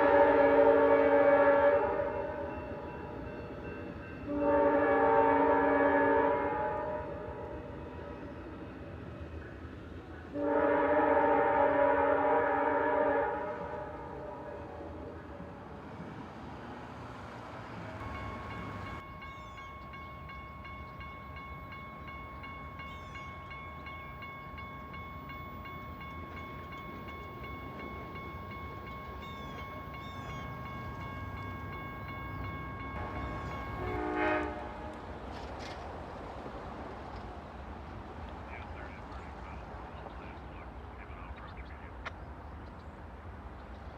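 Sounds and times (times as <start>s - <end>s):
train horn: 0.0s - 2.6s, 4.2s - 8.2s, 10.3s - 15.1s, 25.3s - 35.2s
train rumble: 0.0s - 43.9s.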